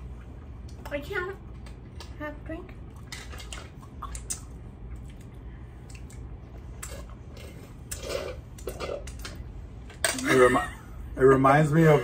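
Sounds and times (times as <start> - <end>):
soft chewing: 2.8 - 9.4
lip smacks and mouth clicks: 2.9 - 7.0.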